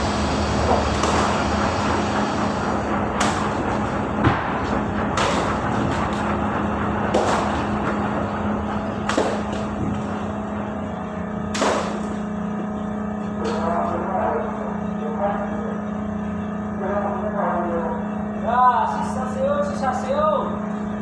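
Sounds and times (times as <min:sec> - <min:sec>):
ship machinery humming: 0:00.0 - 0:21.0
sharp knocks: 0:03.2 - 0:06.4, 0:07.1 - 0:08.2, 0:08.9 - 0:10.2, 0:11.5 - 0:12.2.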